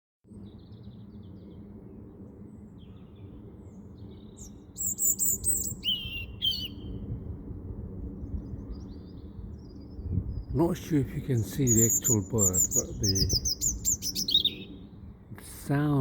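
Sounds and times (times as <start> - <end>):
steady low rumble: 0.3 - 16.0
small bird chirping: 2.8 - 7.0, 11.4 - 14.9.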